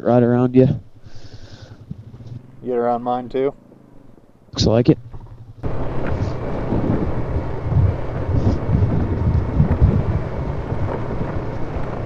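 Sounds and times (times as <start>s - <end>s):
off-road vehicle engine rumbling: 0.0s - 12.0s
wind on microphone: 5.0s - 12.0s.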